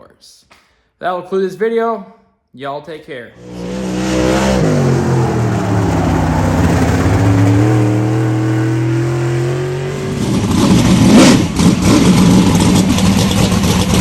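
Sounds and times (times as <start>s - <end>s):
car engine running loudly: 3.4s - 14.0s
engine rev surge: 3.4s - 14.0s.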